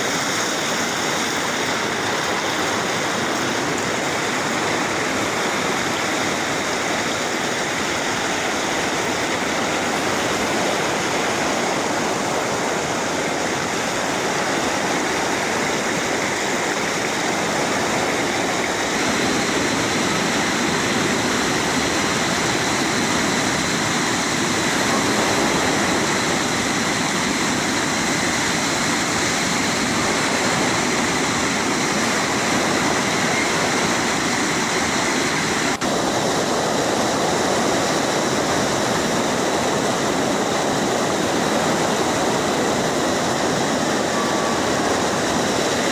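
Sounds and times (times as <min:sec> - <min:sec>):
waterfall water rushing and splashing: 0:00.0 - 0:45.9.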